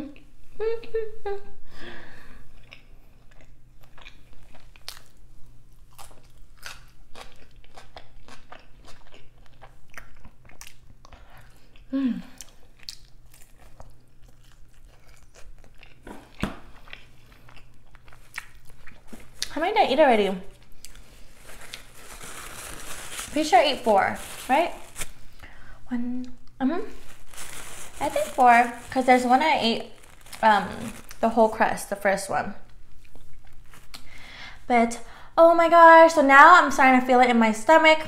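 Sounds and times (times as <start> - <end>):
person humming: 0.0 - 1.5, 11.9 - 12.4
crunchy biting and chewing: 5.8 - 19.5.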